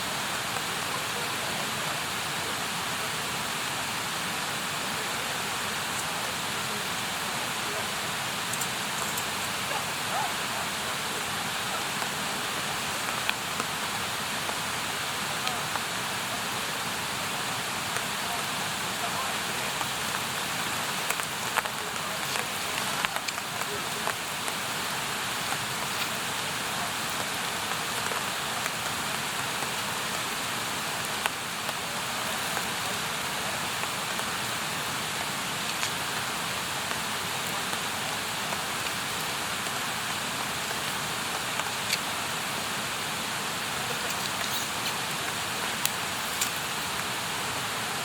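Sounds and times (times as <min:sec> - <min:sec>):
campfire hissing: 0:00.0 - 0:48.0
burning wood crackling pops: 0:19.8 - 0:24.7, 0:43.9 - 0:47.1.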